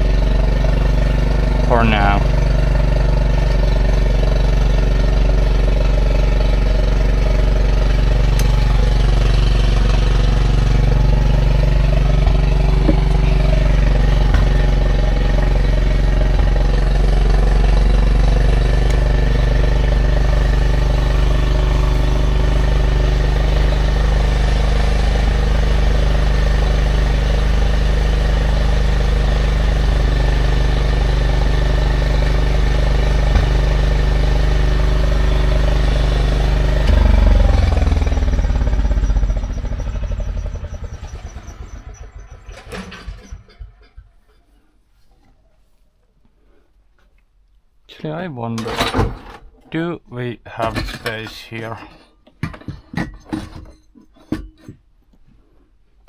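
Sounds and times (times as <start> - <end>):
low mechanical drone: 0.0 - 43.8.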